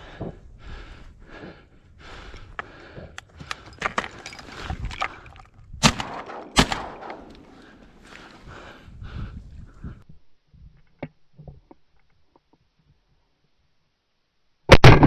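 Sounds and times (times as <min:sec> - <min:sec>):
shotgun shots: 0:05.8 - 0:08.0.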